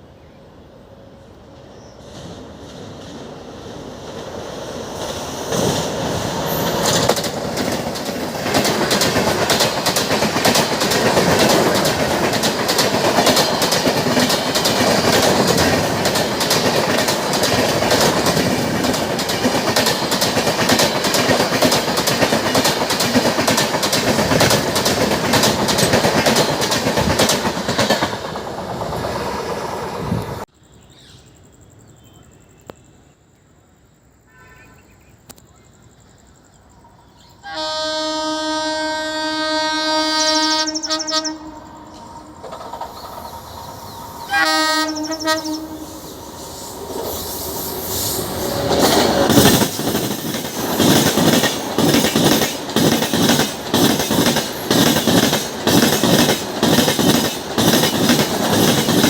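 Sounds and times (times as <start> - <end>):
train passing: 0.0 - 30.5, 35.6 - 59.0
wheels clicking over rail joints: 4.9 - 29.2, 42.0 - 43.9, 48.5 - 59.0.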